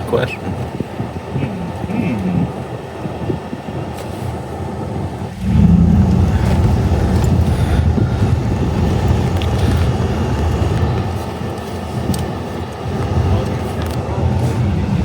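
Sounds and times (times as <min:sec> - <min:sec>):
vehicle road and engine rumble: 0:00.0 - 0:15.0.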